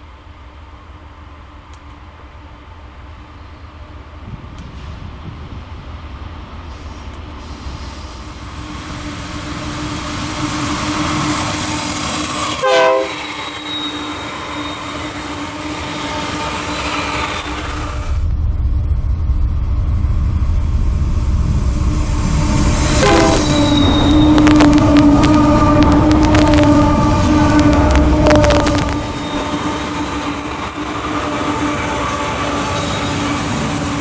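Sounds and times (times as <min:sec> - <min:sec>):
diesel locomotive rumble: 0:00.1 - 0:34.0
train wheels squealing: 0:06.6 - 0:25.3, 0:28.3 - 0:34.0.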